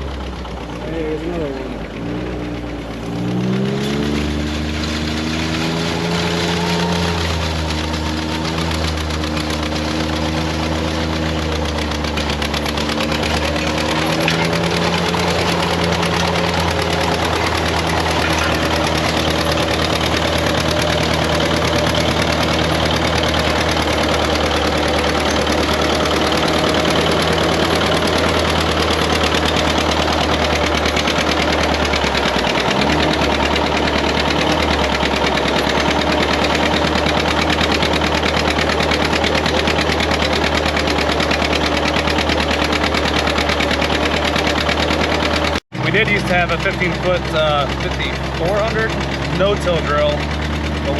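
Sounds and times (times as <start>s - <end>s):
tractor engine running under load: 0.0s - 50.9s.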